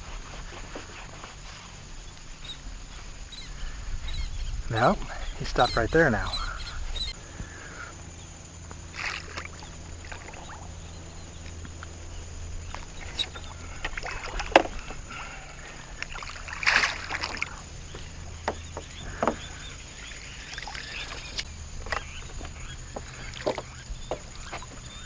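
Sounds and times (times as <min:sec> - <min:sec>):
water splashing: 0:08.9 - 0:10.8, 0:12.7 - 0:25.0.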